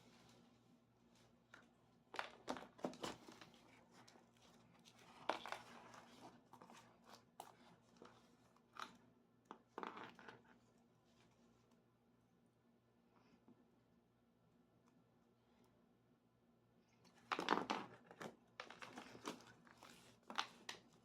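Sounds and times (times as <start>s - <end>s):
packaging crinkling and rustling: 2.2s - 9.0s, 17.2s - 21.0s.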